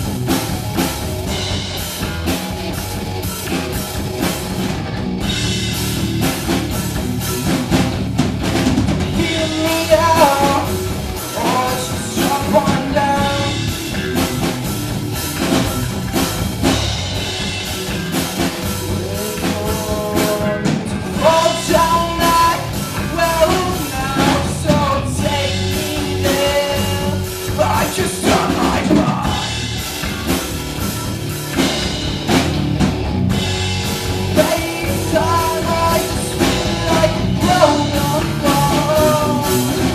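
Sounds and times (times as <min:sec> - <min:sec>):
bass guitar: 0:00.0 - 0:39.9
drum kit: 0:00.0 - 0:39.9
electric guitar: 0:00.0 - 0:39.9
person singing: 0:09.1 - 0:13.8, 0:18.9 - 0:29.7, 0:34.3 - 0:39.9.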